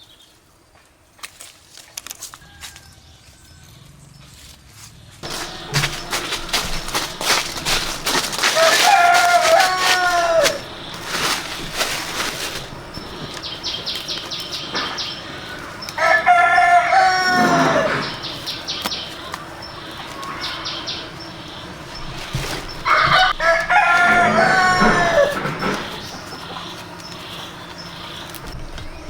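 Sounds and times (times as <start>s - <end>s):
rooster crowing: 2.4s - 3.8s, 5.2s - 13.4s, 15.4s - 18.5s, 22.8s - 26.7s.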